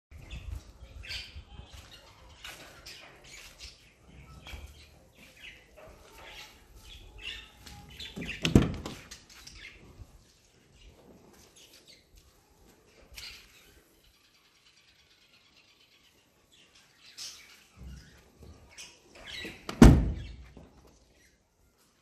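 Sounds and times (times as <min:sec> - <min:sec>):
small birds chirping: 0:00.1 - 0:22.0.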